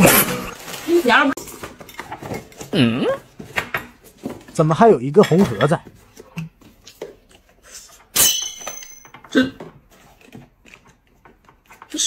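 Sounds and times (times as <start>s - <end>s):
tableware clinking: 5.1s - 5.8s, 8.1s - 9.5s
tableware clicks and taps: 5.1s - 7.0s, 8.2s - 9.3s.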